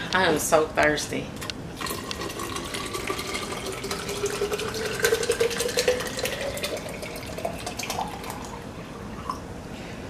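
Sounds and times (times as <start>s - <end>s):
water pouring into a glass: 1.8s - 9.4s.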